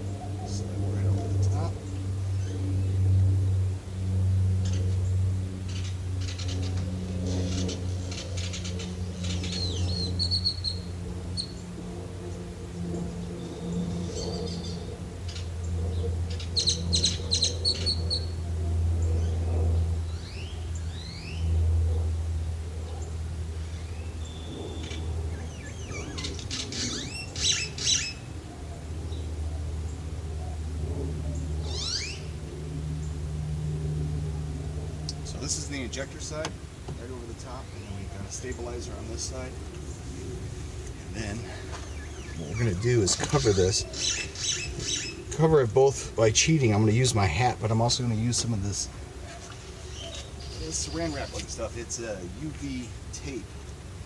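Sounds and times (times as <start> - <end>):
bird chirping: 0.0 - 22.0, 22.7 - 30.6, 31.3 - 33.2, 35.0 - 40.4, 41.1 - 45.4, 49.2 - 52.8
steady low hum: 0.0 - 54.0
steady low rumble: 0.0 - 54.0.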